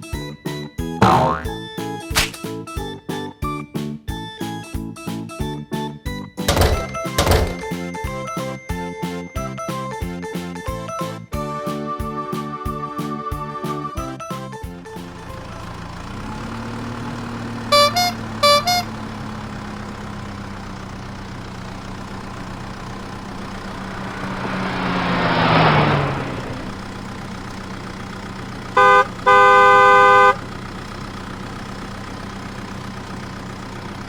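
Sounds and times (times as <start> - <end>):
cartoon horn toots: 1.0 - 1.6, 17.7 - 19.0, 28.8 - 30.4
cartoon motor humming: 1.0 - 1.6
vehicle passing with falling pitch: 1.0 - 1.7, 21.5 - 28.2.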